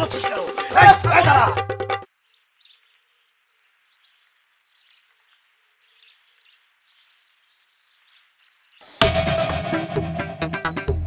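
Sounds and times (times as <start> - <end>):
loud music: 0.0 - 2.1, 9.0 - 11.0
faint birds chirping: 2.1 - 9.0.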